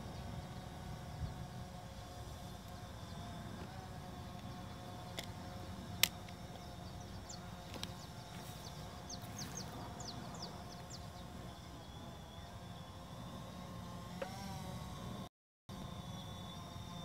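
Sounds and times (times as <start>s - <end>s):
steady low hum: 0.0s - 17.0s
bird chirping: 6.5s - 12.5s.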